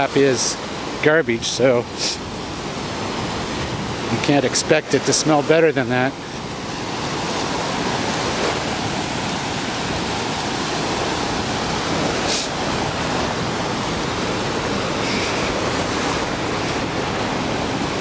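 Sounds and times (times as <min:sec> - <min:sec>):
ocean surf on sandy beach: 0:00.0 - 0:18.0
brief sharp hiss: 0:12.3 - 0:12.5.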